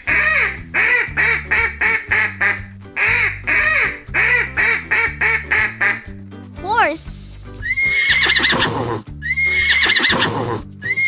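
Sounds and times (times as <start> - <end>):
duck quacking: 0.0 - 6.1
light background music: 0.0 - 11.0.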